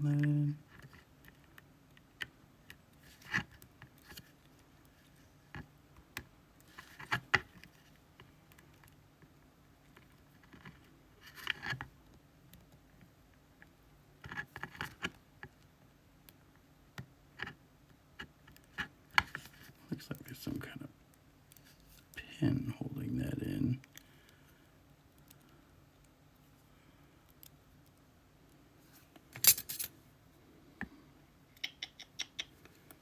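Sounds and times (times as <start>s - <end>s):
small metal tools clicking and scraping: 29.4s - 29.9s.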